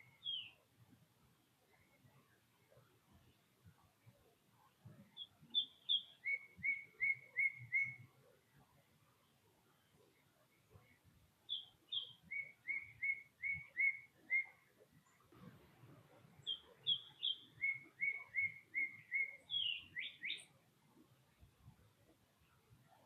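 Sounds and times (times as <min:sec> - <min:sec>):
songbird singing whistled notes: 0:00.0 - 0:00.6, 0:04.0 - 0:08.4, 0:09.8 - 0:15.3, 0:16.3 - 0:20.6.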